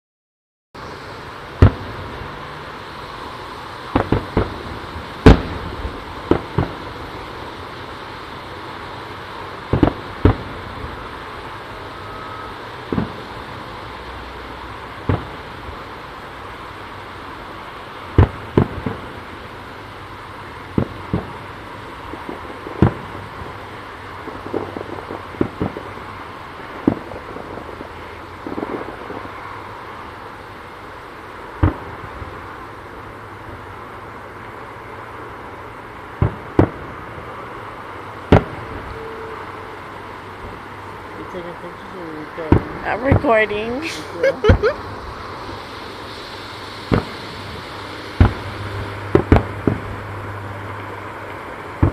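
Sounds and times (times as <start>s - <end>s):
fireworks booming: 0.8s - 51.9s
steady background noise: 0.8s - 51.9s
small firework pops: 1.6s - 2.0s, 3.9s - 6.9s, 9.7s - 10.8s, 12.8s - 13.4s, 15.0s - 15.8s, 18.1s - 19.2s, 20.7s - 23.6s, 24.2s - 29.6s, 31.6s - 32.4s, 36.2s - 37.4s, 38.2s - 39.2s, 45.4s - 50.0s, 50.6s - 51.9s.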